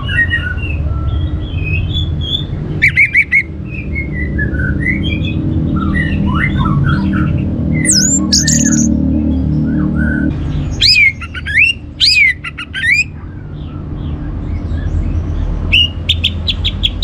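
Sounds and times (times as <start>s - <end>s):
loud sharp bird notes: 1.4s - 9.0s, 9.7s - 13.1s, 15.7s - 17.0s
thrush singing whistled phrases: 7.8s - 8.9s.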